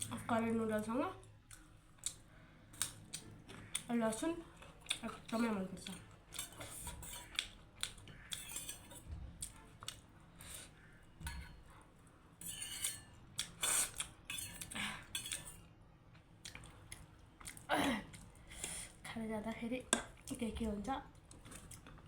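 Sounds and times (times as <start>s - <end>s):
close-miked eating sounds: 1.1s - 22.0s
cutlery clinking on plate: 12.4s - 13.1s, 14.3s - 15.6s.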